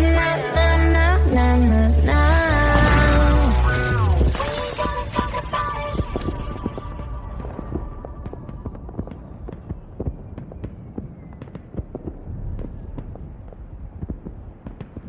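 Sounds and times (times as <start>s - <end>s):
sharp crackling pops: 4.3s - 15.0s
low rumble: 12.0s - 15.0s.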